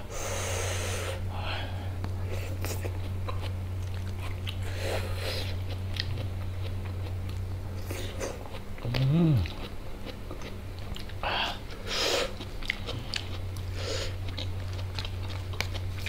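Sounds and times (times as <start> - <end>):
steady low hum: 0.0 - 16.0
person chewing food: 2.0 - 16.0.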